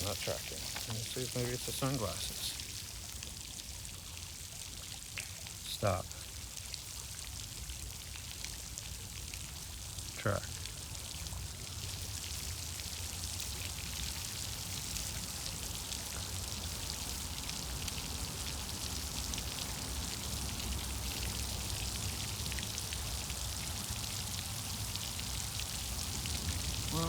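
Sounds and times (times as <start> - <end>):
crackling hiss: 0.0 - 3.2, 22.8 - 27.0.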